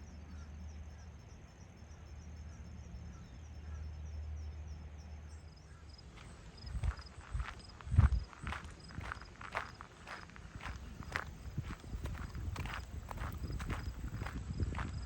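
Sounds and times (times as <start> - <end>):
faint bird chirps: 0.0 - 6.8
crickets chirping: 0.2 - 15.0
steady low rumble: 4.4 - 15.0.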